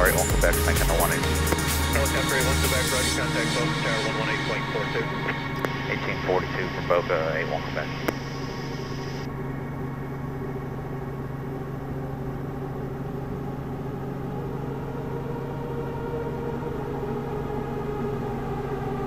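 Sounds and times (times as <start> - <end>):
helicopter engine and rotor drone: 0.0 - 19.0.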